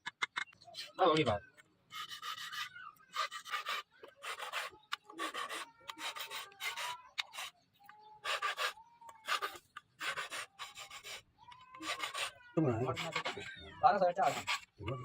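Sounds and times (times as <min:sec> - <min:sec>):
abrasive tool rasping on knife blade: 0:08.2 - 0:13.5.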